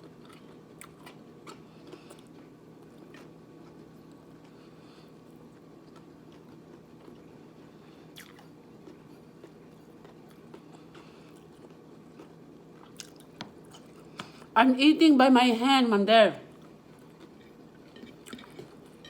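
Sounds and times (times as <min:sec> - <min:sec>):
person chewing food: 0:00.0 - 0:14.5, 0:16.5 - 0:19.0
low steady hum: 0:00.0 - 0:19.0
soft mouth clicks and smacks: 0:08.1 - 0:08.5.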